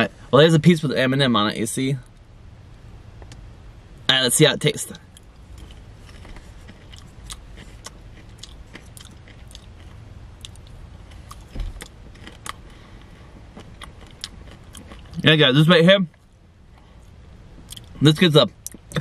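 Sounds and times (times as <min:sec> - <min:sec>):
low steady rumble: 0:00.0 - 0:19.0
person chewing crunchy popcorn: 0:05.1 - 0:15.3.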